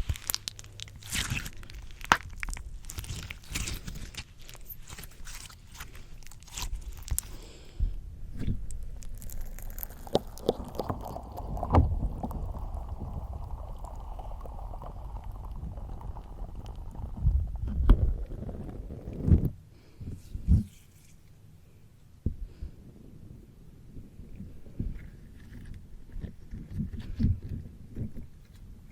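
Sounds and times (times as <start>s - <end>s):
slime squished on microphone: 0.0s - 19.6s
sticky pops and clicks: 8.4s - 18.1s.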